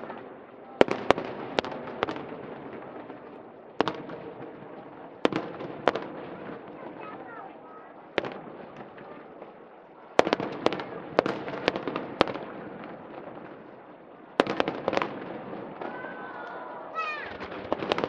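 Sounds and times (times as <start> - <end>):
crowd murmur: 0.0 - 18.0
fireworks bangs and crackles: 0.0 - 18.0.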